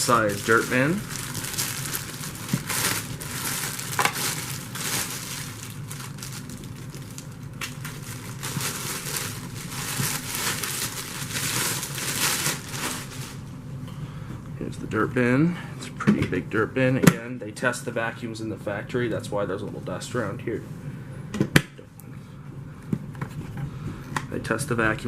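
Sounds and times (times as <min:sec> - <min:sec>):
packaging crinkling and rustling: 0:00.0 - 0:13.4.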